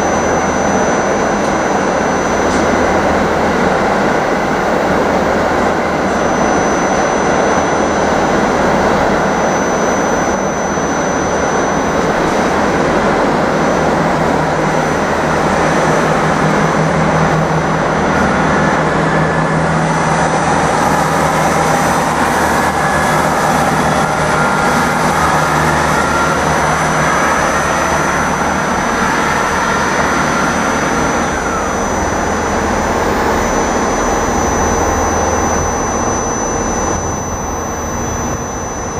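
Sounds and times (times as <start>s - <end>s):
diesel train engines rumbling: 0.0s - 38.9s
high whine: 0.0s - 38.9s.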